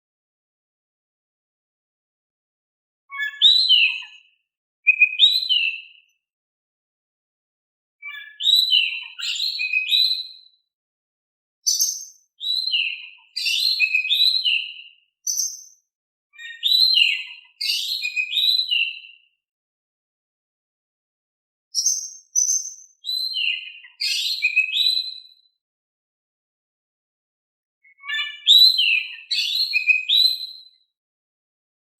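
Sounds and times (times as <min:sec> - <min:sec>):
bird singing whistled phrases: 0:03.1 - 0:04.3, 0:04.9 - 0:06.1, 0:08.0 - 0:10.5, 0:11.7 - 0:15.8, 0:16.4 - 0:19.2, 0:21.8 - 0:25.4, 0:27.8 - 0:30.8.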